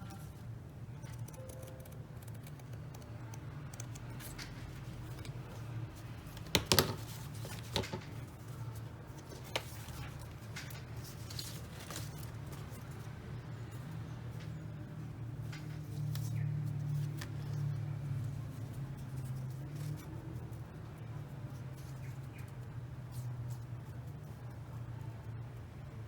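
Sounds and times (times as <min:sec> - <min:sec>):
low steady hum: 0:00.0 - 0:26.0
needlework clicks and snips: 0:01.1 - 0:05.6.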